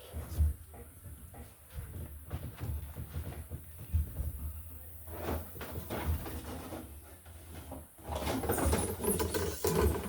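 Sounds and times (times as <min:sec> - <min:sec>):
wire scraping and rustling: 0:08.0 - 0:10.0.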